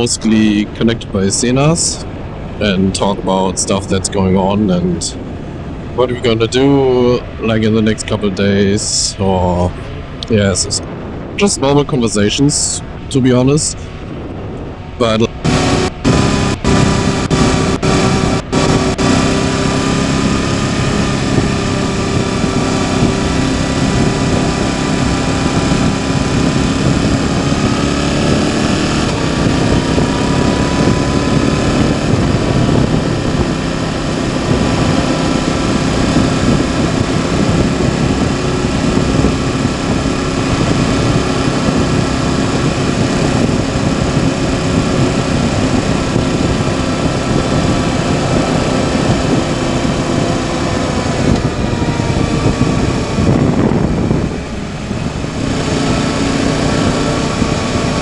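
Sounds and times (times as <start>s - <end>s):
wind and road noise: 0.0s - 58.0s
motorcycle engine running: 13.8s - 58.0s.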